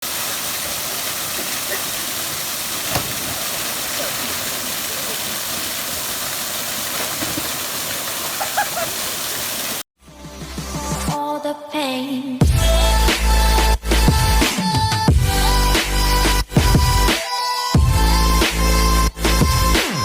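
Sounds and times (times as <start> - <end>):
waterfall roaring: 0.0 - 9.8.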